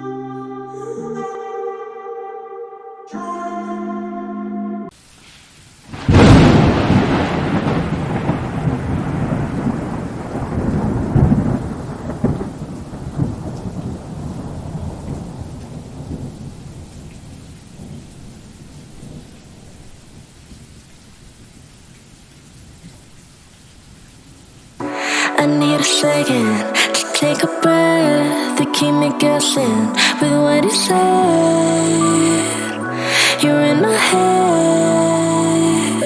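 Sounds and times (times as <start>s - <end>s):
rain: 4.9s - 36.0s
thunder rumbling: 5.9s - 20.2s, 24.8s - 36.0s.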